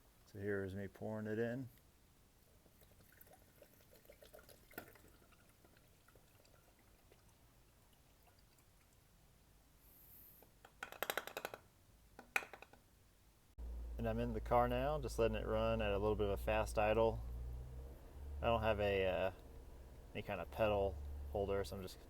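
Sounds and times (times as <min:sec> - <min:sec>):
liquid trickling and dripping: 0:02.4 - 0:09.4.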